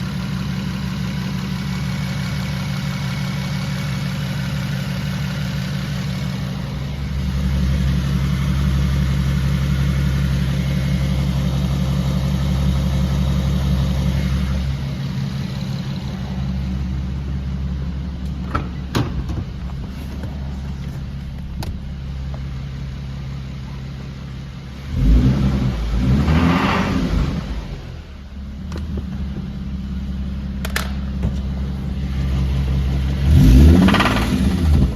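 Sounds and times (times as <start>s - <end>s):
car engine humming: 0.0s - 34.9s
rough engine surge: 6.0s - 34.9s.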